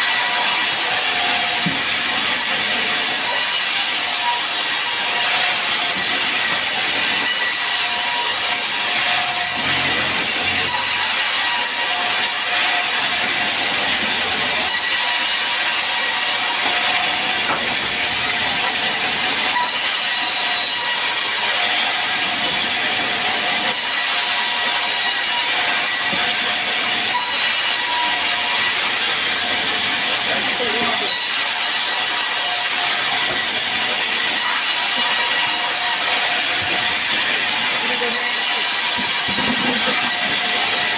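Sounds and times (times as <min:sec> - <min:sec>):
saw cutting through log: 0:00.0 - 0:40.9.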